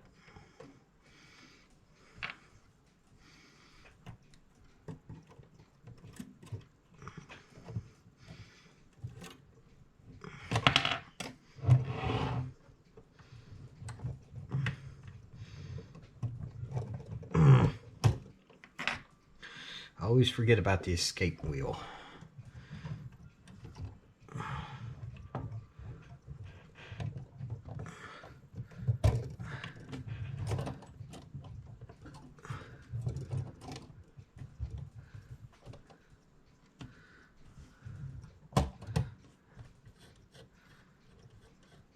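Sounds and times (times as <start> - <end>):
clock parts clicking and tapping: 2.0 - 11.8, 20.2 - 41.9.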